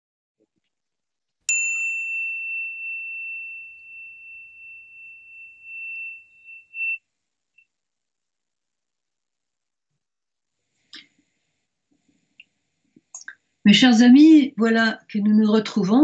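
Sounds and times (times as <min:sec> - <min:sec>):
high bell-like chime: 0:01.5 - 0:07.0.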